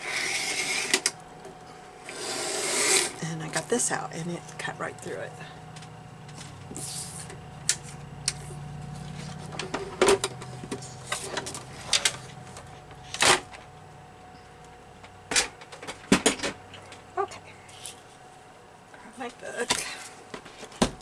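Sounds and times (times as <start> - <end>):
paper trimmer cutting paper: 0.0 - 1.2, 2.0 - 3.2
low steady hum: 0.0 - 21.0.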